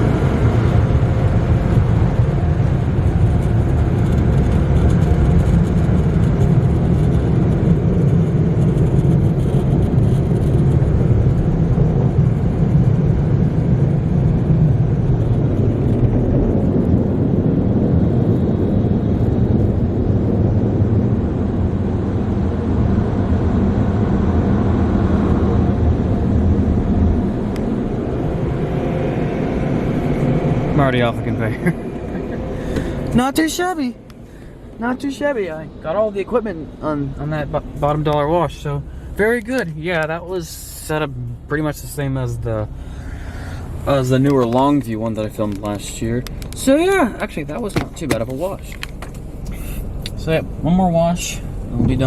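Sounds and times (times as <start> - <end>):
dryer blowers rushing air: 12.2 - 40.3.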